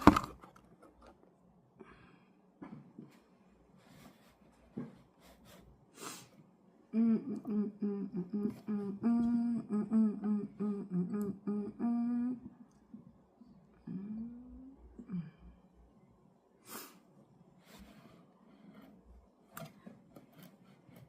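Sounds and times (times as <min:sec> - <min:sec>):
person humming a tune: 0:06.9 - 0:12.7, 0:13.8 - 0:15.5.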